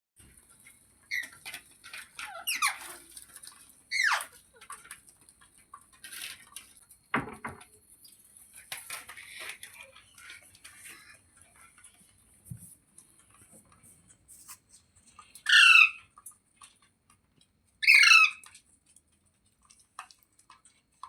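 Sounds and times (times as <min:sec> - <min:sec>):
parrot squeaky calls: 0:01.1 - 0:01.4, 0:02.2 - 0:03.0, 0:03.9 - 0:04.4, 0:15.4 - 0:16.1, 0:17.8 - 0:18.4.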